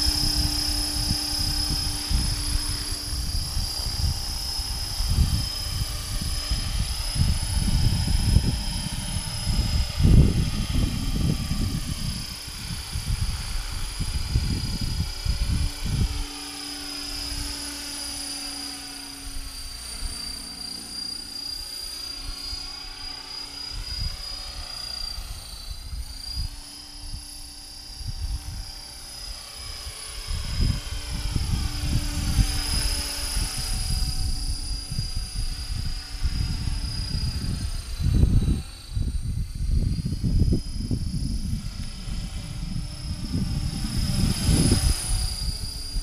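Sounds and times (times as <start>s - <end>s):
wind buffeting microphone: 0.0s - 20.2s, 22.2s - 46.0s
electric motor whine: 0.0s - 46.0s
helicopter rotors humming: 0.0s - 46.0s.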